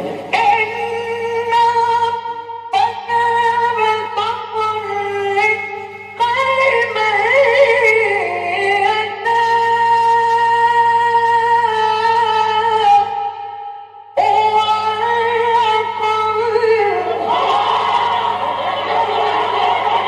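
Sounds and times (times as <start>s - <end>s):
melodic vocal recitation: 0.0s - 20.0s.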